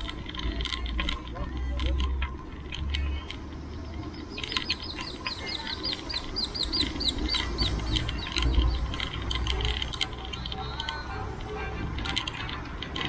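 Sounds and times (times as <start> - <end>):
bird calling falling notes: 4.1 - 11.1.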